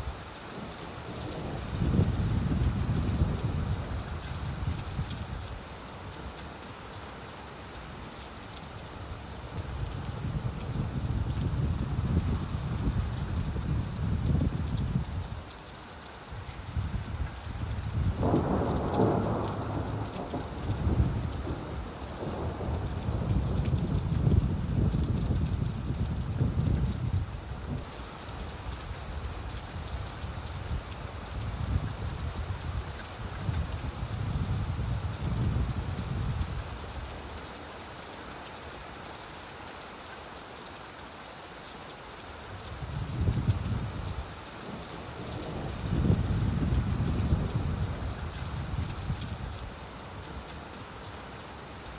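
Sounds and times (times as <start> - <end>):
steady rainfall: 0.0 - 51.9
thunder rumbling: 17.9 - 27.9, 45.2 - 49.1.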